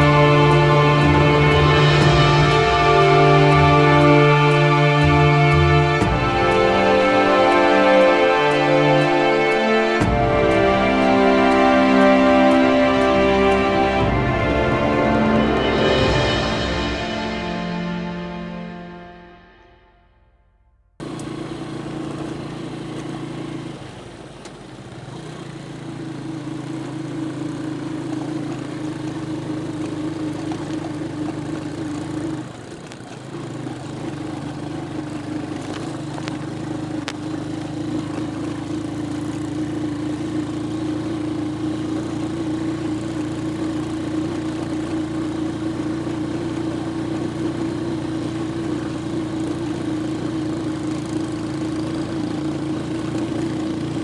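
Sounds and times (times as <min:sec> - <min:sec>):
vehicle engine running: 0:00.0 - 0:20.0, 0:21.0 - 0:54.0.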